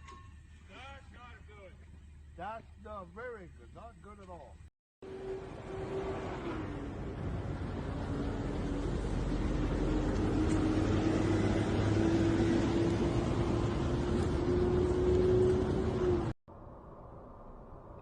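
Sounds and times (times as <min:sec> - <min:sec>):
road and wind noise: 0:03.6 - 0:18.0
vehicle engine accelerating: 0:05.0 - 0:16.4.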